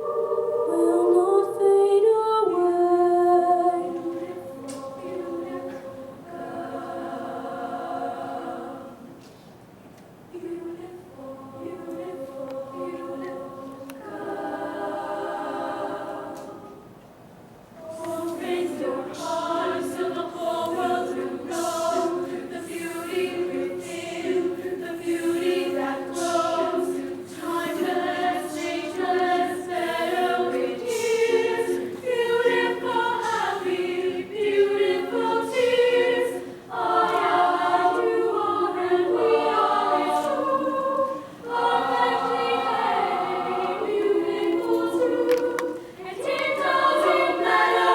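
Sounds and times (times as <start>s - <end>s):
choir singing in harmony: 0.0s - 9.4s, 10.3s - 17.0s, 17.8s - 47.9s.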